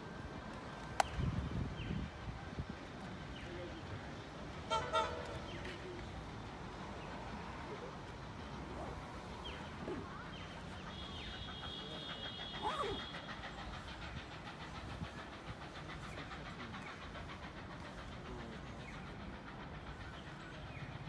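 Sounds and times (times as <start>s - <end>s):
distant train rumble: 0.0s - 21.0s.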